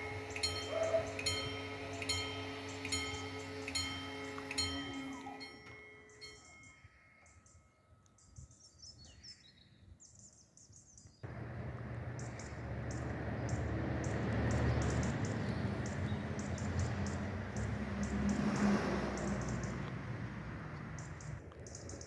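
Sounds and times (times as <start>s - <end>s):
freight train rumbling: 0.0s - 5.8s, 11.2s - 21.4s.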